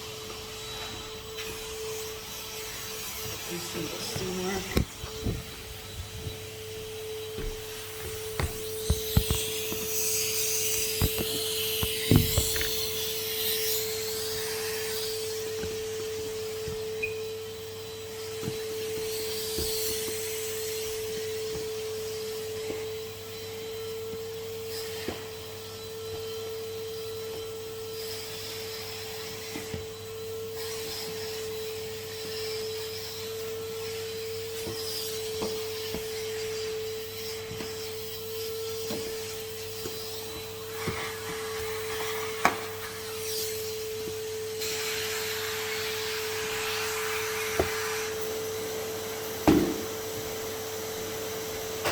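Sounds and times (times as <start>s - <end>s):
vacuum cleaner running: 0.0s - 51.9s
sharp knocks: 11.0s - 12.7s.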